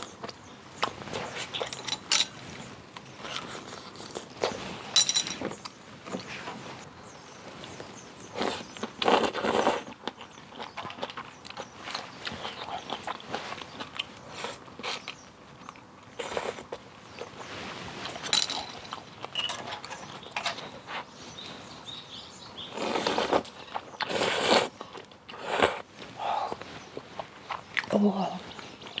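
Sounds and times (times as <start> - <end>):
chewing: 0.0 - 21.5, 22.6 - 29.0
slurping noodles: 22.7 - 25.8.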